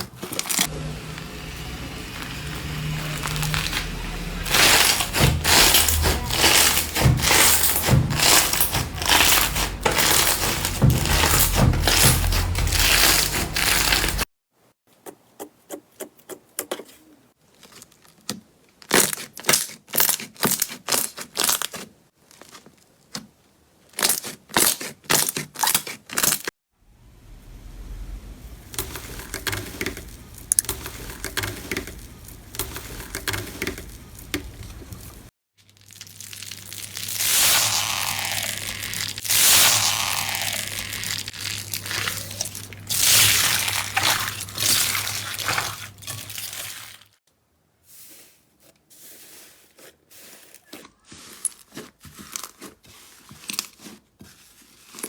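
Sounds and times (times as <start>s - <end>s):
slime crackling and popping: 2.6s - 14.2s, 35.6s - 47.0s.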